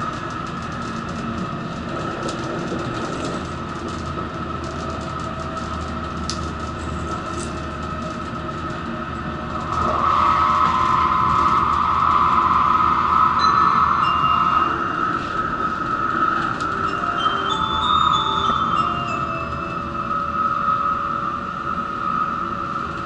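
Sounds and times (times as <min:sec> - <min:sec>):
train car rumble: 0:00.0 - 0:23.0
high whine: 0:09.7 - 0:23.0.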